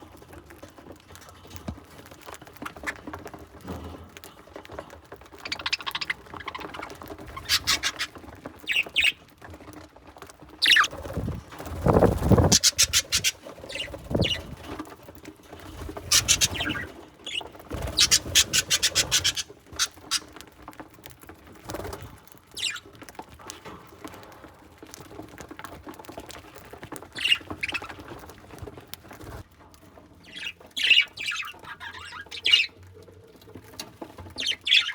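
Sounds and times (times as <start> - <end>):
beaks pecking with fine clicks: 5.3 - 9.2, 10.6 - 11.0, 11.9 - 14.5, 16.0 - 21.1, 26.3 - 28.3
budgerigar chirps: 7.4 - 8.1, 12.4 - 14.4, 16.1 - 16.9, 18.0 - 20.3.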